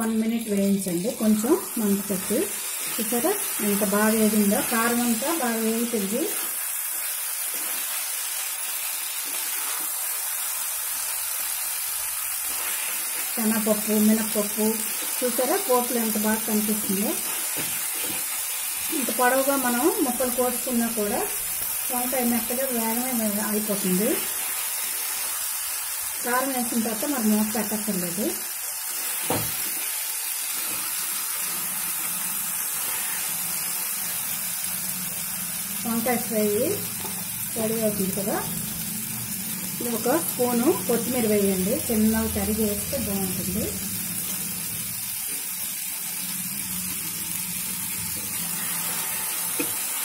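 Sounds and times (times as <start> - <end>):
spatula turning food: 0.0 - 26.9
vegetables sizzling in a pan: 0.0 - 50.0.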